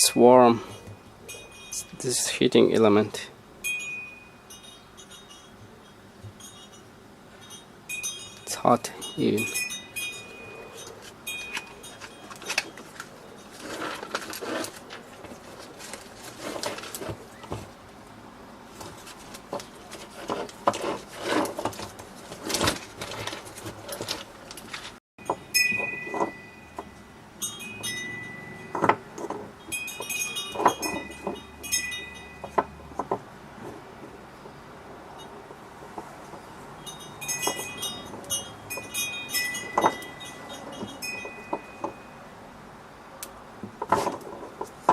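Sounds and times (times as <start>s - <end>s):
metal parts clinking: 6.4s - 17.0s, 20.8s - 32.6s, 36.9s - 42.1s.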